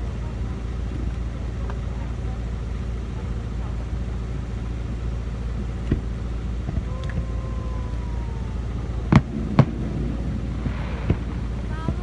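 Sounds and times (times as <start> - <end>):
steady low rumble: 0.0 - 12.0
firework bangs: 5.6 - 12.0
faint falling whistle: 6.7 - 12.0.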